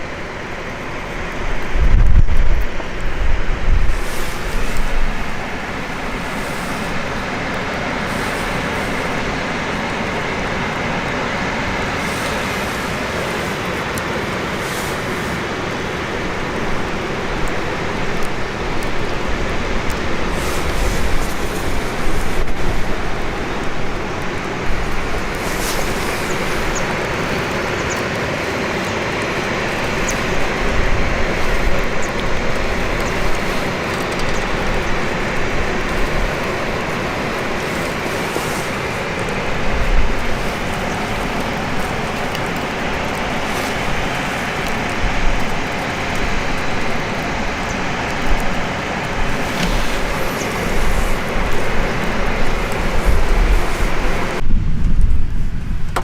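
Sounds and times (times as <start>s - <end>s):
campfire crackling: 0.0s - 56.0s.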